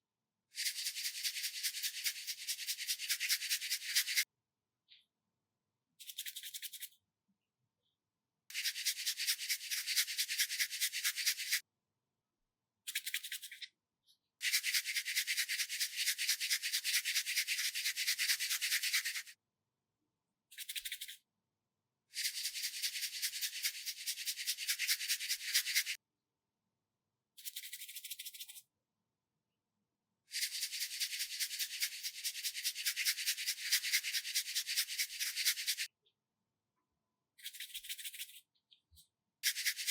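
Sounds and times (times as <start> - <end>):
rapid scratching strokes: 0.6 - 4.2, 8.5 - 11.6, 22.2 - 26.0, 30.3 - 35.9, 39.4 - 39.9.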